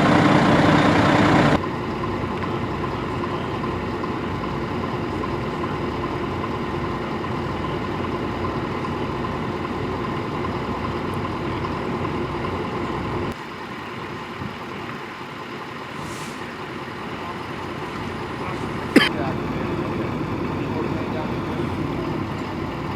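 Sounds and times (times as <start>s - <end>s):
vehicle engine idling: 0.0s - 22.9s.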